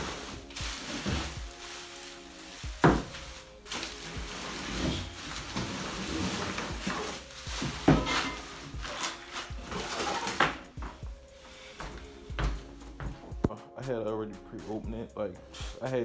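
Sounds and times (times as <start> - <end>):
metal parts clattering: 0.0 - 10.8
packaging rustling: 0.0 - 13.4.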